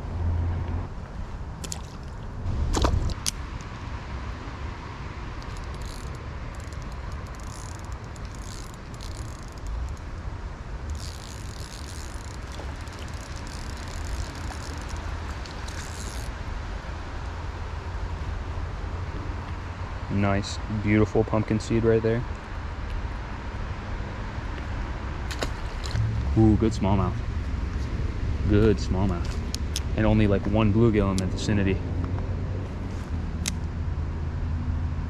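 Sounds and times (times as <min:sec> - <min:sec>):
low outdoor rumble: 0:00.0 - 0:35.0
high rustling and ticking: 0:05.4 - 0:10.2, 0:10.9 - 0:16.3.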